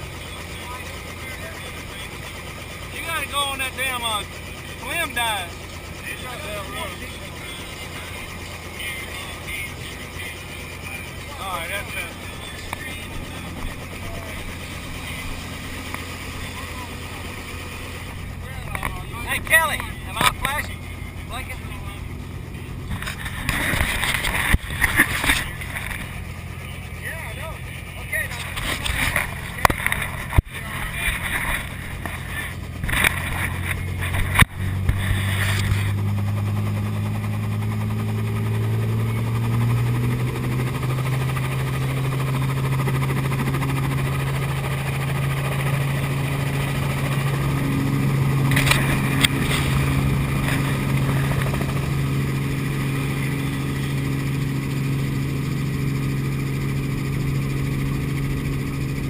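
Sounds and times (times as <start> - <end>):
helicopter engine spooling up: 0.0 - 59.0.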